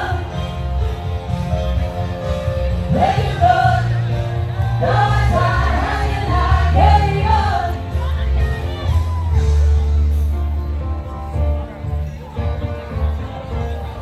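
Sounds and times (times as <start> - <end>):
voices singing together: 0.0 - 0.6, 2.8 - 8.2
strong steady bass line: 0.0 - 12.0.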